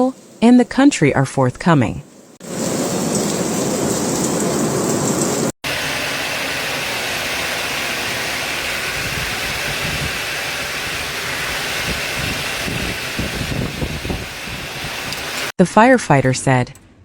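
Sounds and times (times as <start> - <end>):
heavy downpour hissing: 2.4 - 15.6.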